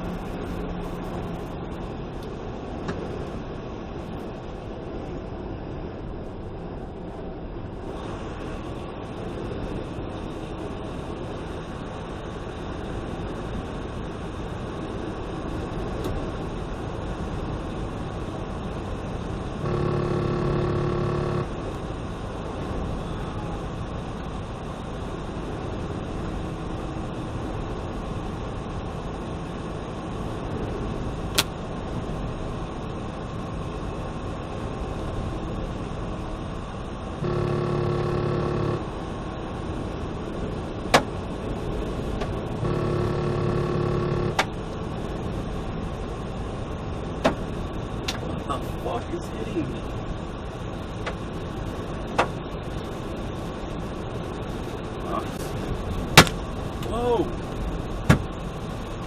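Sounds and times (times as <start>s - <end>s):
road noise inside car: 0.0s - 59.0s
held pitched tones: 19.6s - 21.5s, 37.2s - 38.9s, 42.6s - 44.4s
sharp click: 31.3s - 31.5s.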